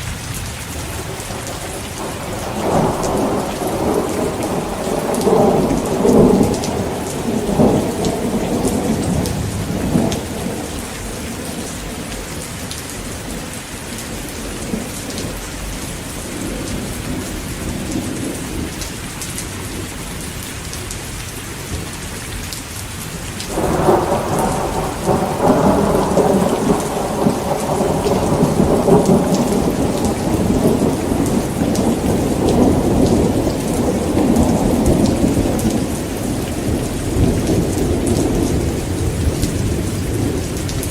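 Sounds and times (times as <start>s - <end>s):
thunder rumbling: 0.0s - 20.2s, 23.0s - 40.9s
heavy rain: 0.0s - 40.9s.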